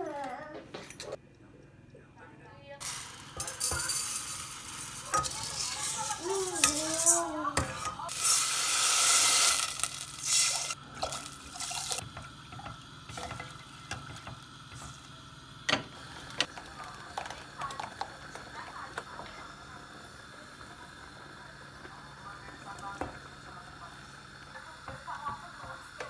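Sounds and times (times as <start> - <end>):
dishes and utensils clinking: 2.8 - 8.4
water tap running: 2.8 - 21.2.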